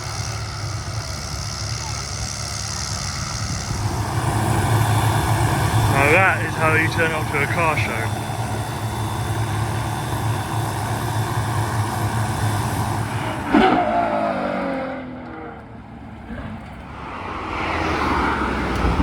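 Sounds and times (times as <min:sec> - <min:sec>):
car engine accelerating past: 0:13.1 - 0:19.0.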